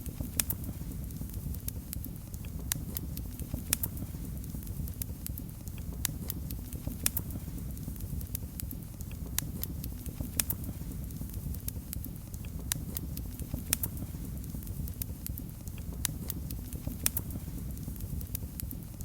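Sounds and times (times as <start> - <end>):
fire crackling and popping: 0.0 - 19.0
low rumble of flames: 0.0 - 19.0.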